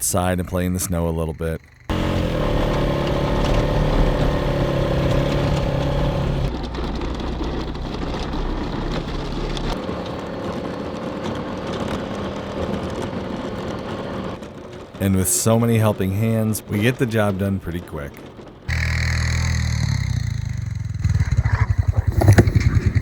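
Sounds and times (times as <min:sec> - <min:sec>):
snowplow engine running: 0:01.9 - 0:23.0.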